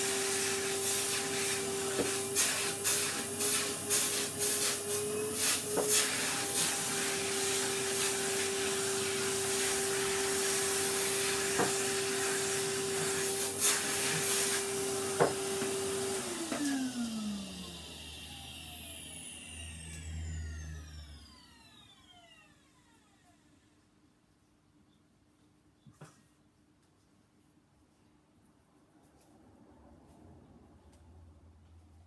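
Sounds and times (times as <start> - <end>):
vacuum cleaner running: 0.0 - 23.7.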